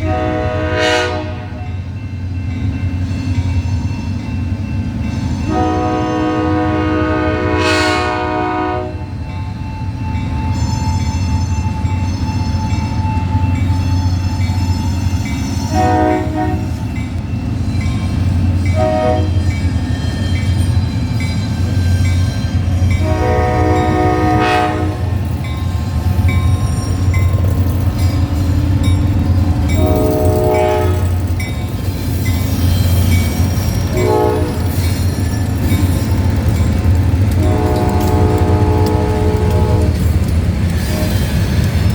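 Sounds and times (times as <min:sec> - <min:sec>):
locomotive air horn blasts: 0:00.0 - 0:01.7, 0:05.5 - 0:09.1, 0:15.7 - 0:16.7, 0:18.7 - 0:19.4, 0:23.0 - 0:25.2, 0:29.7 - 0:31.3, 0:33.8 - 0:34.8, 0:37.4 - 0:40.0
train rumbling past: 0:00.0 - 0:41.9.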